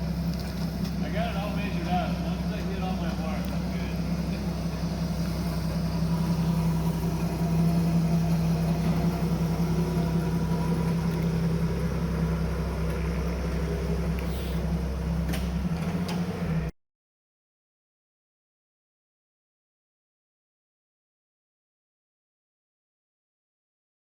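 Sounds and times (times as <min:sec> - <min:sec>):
helicopter rotors and turbines droning: 0:00.0 - 0:16.7.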